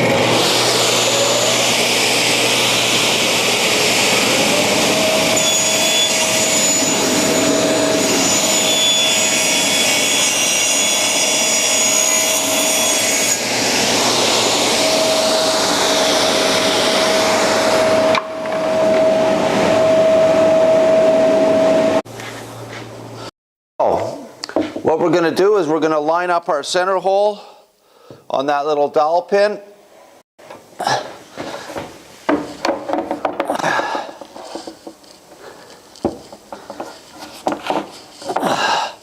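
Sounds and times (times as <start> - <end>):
table saw cutting wood: 0.0 - 22.0.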